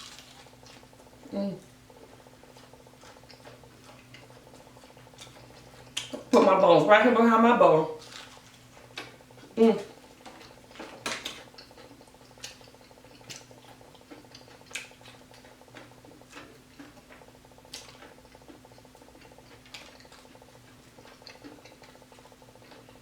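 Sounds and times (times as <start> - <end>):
person chewing crunchy food: 0.0 - 6.4, 8.0 - 23.0.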